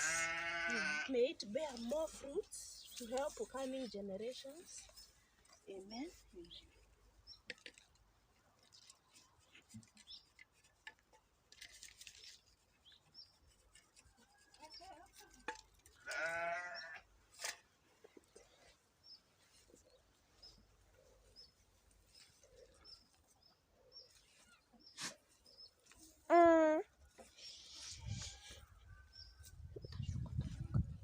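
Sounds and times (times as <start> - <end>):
goat bleating: 0.0 - 1.1, 16.0 - 17.0.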